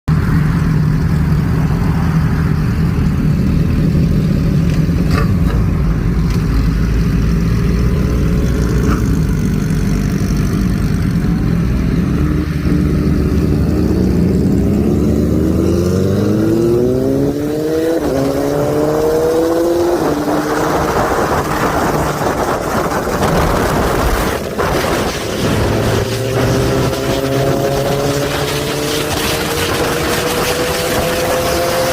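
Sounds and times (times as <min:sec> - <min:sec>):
motorcycle engine revving: 0:00.1 - 0:31.9
rushing noise: 0:11.0 - 0:31.9.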